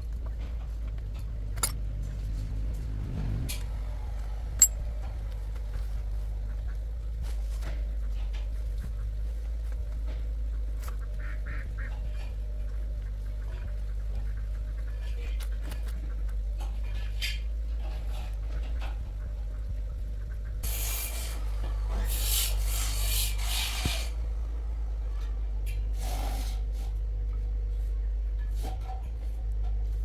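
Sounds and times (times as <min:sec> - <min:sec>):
steady low hum: 0:00.0 - 0:30.0
irregular scraping strokes: 0:20.6 - 0:24.4.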